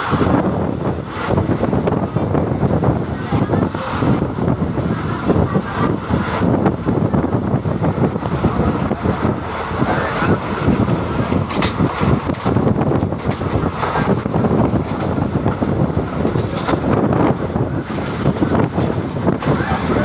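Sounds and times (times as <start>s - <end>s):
train rumbling on track: 0.0s - 20.0s
wheels and coaches rattling: 0.0s - 20.0s.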